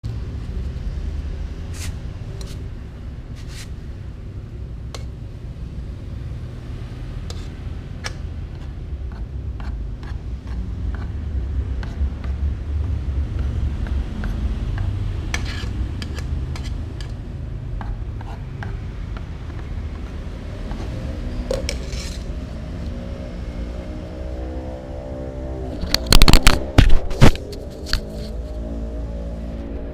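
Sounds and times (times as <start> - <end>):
clicks and taps of food bowls: 17.8 - 19.7.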